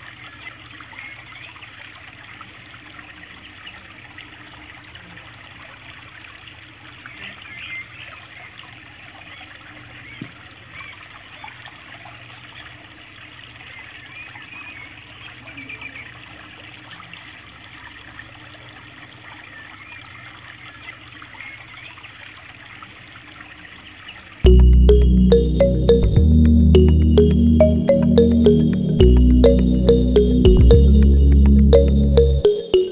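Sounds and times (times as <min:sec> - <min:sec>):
low hum: 0:24.5 - 0:32.4.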